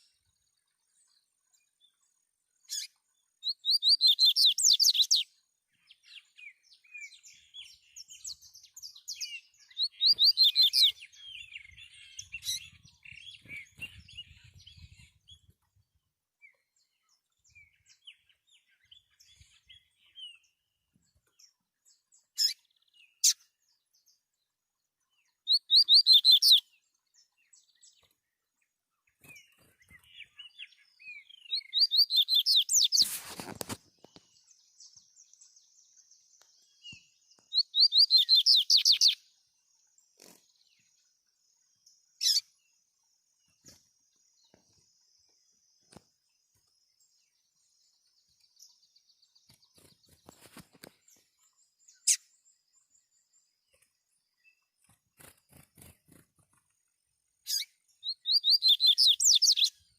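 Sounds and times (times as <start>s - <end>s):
birds singing whistled notes: 0.0s - 59.9s
soft bird chirps: 0.0s - 59.9s.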